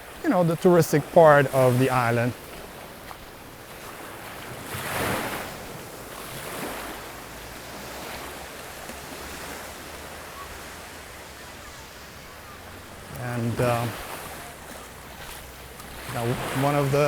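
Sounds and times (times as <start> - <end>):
sea waves breaking on beach: 0.0 - 17.0.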